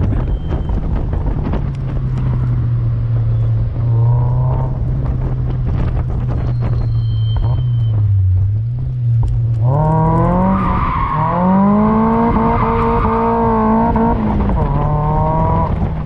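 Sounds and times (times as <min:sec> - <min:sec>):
car engine at high revs: 0:00.0 - 0:16.0
wind buffeting microphone: 0:00.0 - 0:16.0
brief squeal: 0:06.4 - 0:08.2.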